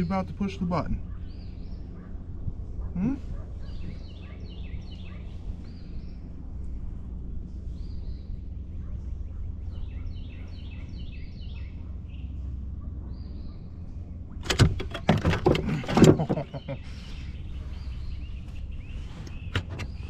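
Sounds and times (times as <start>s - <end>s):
low outdoor rumble: 0.0s - 20.0s
small birds chirping: 0.0s - 20.0s
clattering knocks and rattles: 14.4s - 16.7s.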